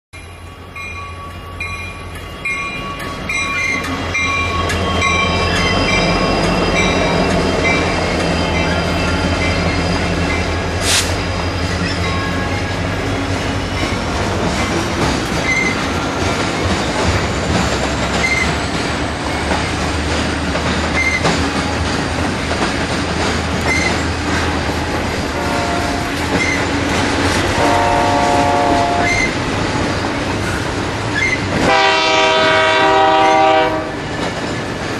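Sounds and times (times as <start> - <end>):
locomotive engines droning: 0.2 - 34.9
train wheels rumbling and clattering: 0.8 - 34.9
train horn blasts: 25.3 - 26.7, 27.4 - 29.4, 31.5 - 34.1.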